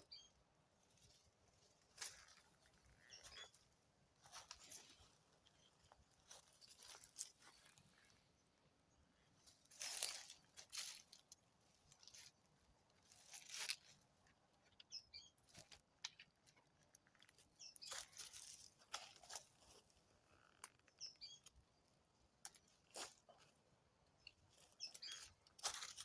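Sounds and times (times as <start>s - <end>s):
crunching and rustling: 0.9s - 3.6s, 4.2s - 8.3s, 9.4s - 14.4s, 15.4s - 20.9s, 22.4s - 23.6s, 24.4s - 26.0s.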